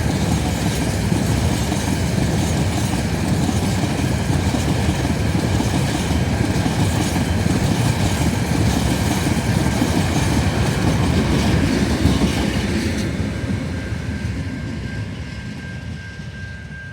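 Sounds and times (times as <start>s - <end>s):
train wheels clacking over rail joints: 0.0s - 13.1s.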